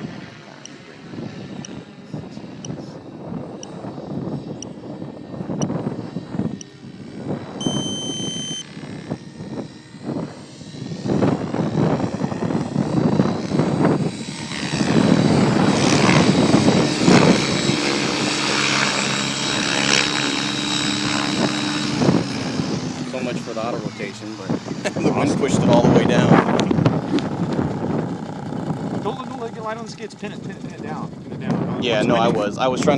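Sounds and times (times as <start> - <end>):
rc helicopter rotor whirring: 0.0 - 32.9
wind buffeting microphone: 0.0 - 32.9
short high beep: 7.6 - 8.6.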